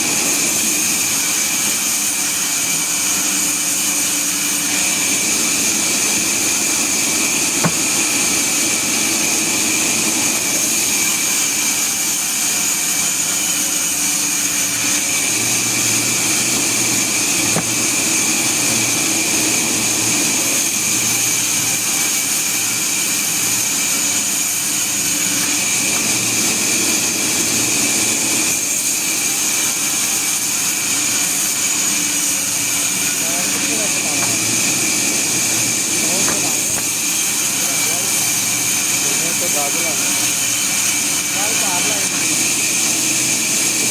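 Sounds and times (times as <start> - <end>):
sawmill machinery whine: 0.0 - 43.9.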